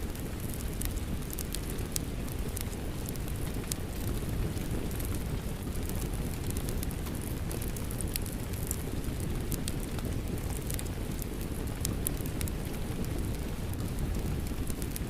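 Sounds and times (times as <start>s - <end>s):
rain: 0.0s - 15.0s
wood fire crackling and popping: 0.0s - 15.0s.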